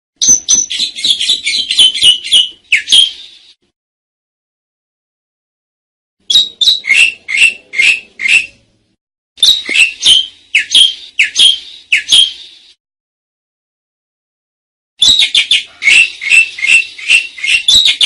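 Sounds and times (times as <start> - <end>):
starling calling: 0.2 - 3.6, 6.3 - 8.6, 9.4 - 12.8, 15.0 - 18.0.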